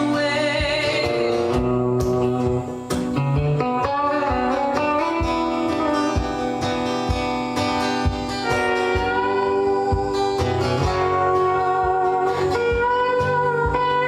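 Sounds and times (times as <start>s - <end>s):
strummed acoustic guitar: 0.0s - 14.0s
bending melody notes: 3.2s - 14.0s.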